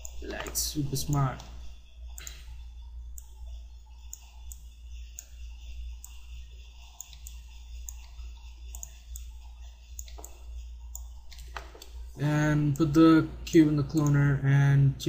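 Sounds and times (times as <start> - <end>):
low electrical hum: 0.0 - 15.0
mouse and keyboard clicks: 10.0 - 10.4, 11.0 - 12.0.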